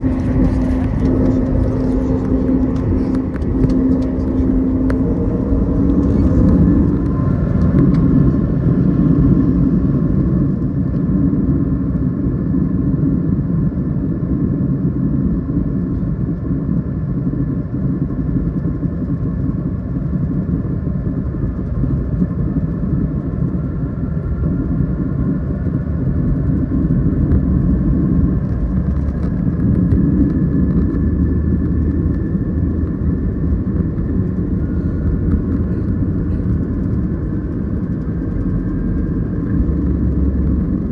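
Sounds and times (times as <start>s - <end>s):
faint high whine: 0.0s - 11.6s
jet airliner cabin rumble: 0.0s - 40.9s.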